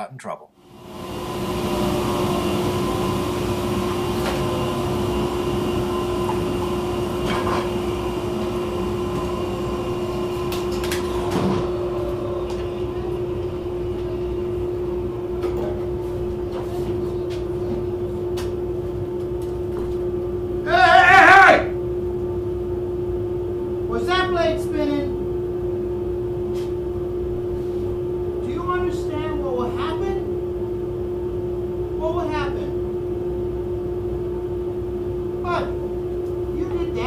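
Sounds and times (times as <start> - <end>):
woodshop machine running: 0.6 - 15.4.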